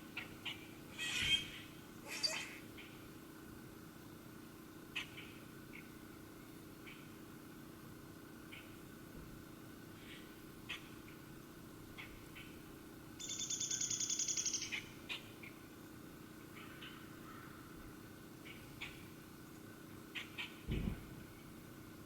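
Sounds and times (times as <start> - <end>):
songbird trilling: 13.2 - 15.3.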